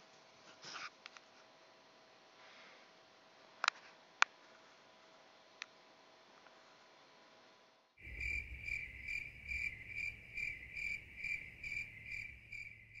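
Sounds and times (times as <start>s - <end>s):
cricket-like chirping: 8.0s - 13.0s
low hum: 8.0s - 13.0s.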